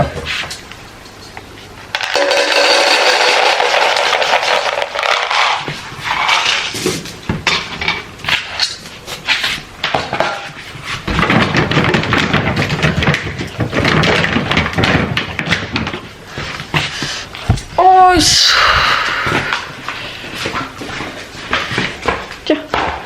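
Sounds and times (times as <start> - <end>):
rustling noise: 8.2 - 22.4.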